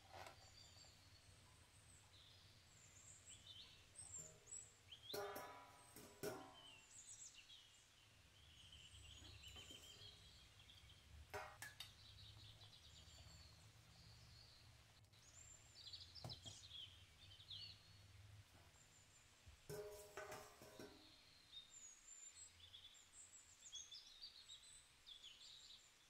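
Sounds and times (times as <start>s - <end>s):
faint birds chirping: 0.0s - 26.0s.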